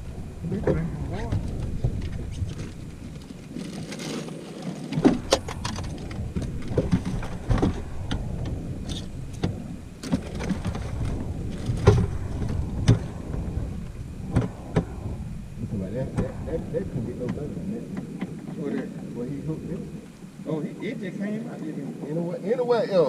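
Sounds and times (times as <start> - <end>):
low rumble: 0.0 - 22.2
knocks and clatter of gear: 1.3 - 13.2.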